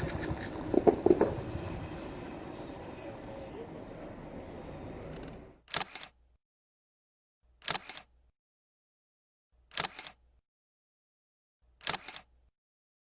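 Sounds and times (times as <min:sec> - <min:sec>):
street noise: 0:00.0 - 0:05.6
camera shutter clicking: 0:05.2 - 0:06.2, 0:07.6 - 0:08.1, 0:09.7 - 0:10.2, 0:11.8 - 0:12.3.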